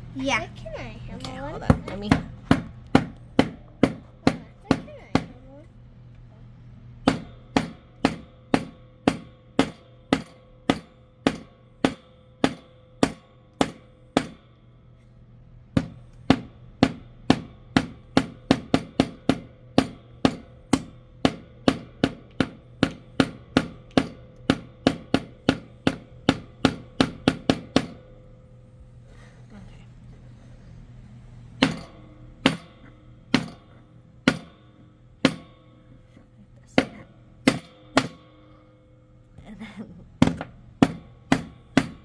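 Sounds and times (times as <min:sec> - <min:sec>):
hammer striking nails into wood: 0:01.8 - 0:05.3, 0:07.0 - 0:14.4, 0:15.8 - 0:28.0, 0:34.3 - 0:34.6, 0:36.8 - 0:38.4, 0:40.2 - 0:42.0.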